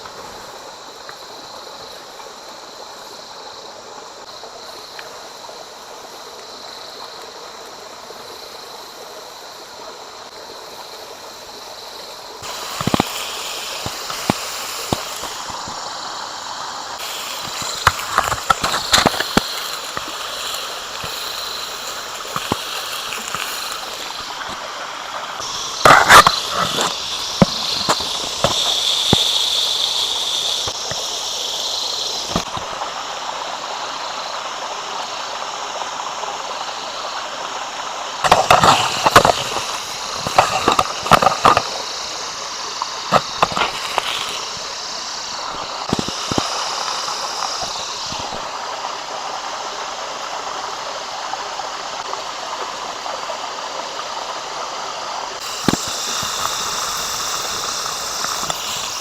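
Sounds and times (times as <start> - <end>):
steak sizzling on a grill: 55.4 - 59.0.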